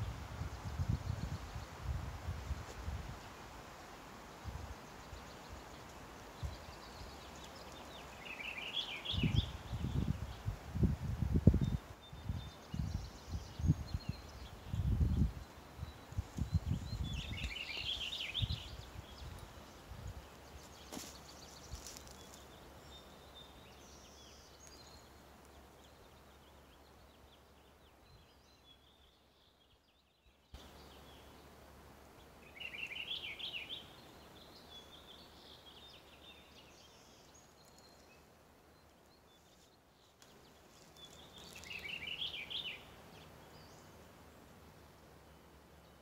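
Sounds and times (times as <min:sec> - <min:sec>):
small birds chirping: 0:00.0 - 0:46.0
songbird trilling: 0:41.0 - 0:43.9.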